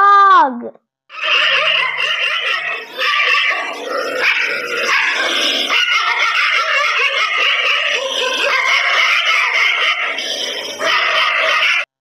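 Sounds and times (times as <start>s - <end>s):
dogs barking: 1.1s - 12.0s.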